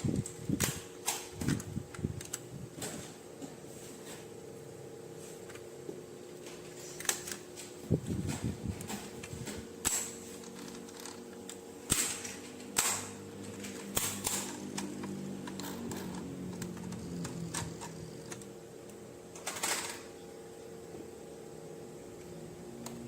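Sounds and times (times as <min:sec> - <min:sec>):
plastic parts clicking and tapping: 0:00.0 - 0:03.6, 0:06.4 - 0:20.1
faint steady hum: 0:00.0 - 0:23.0.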